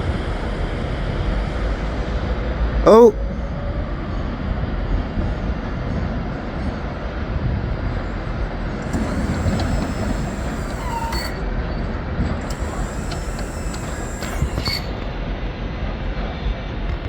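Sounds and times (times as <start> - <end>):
high squeaks and clicks: 8.8 - 11.4, 12.5 - 15.1.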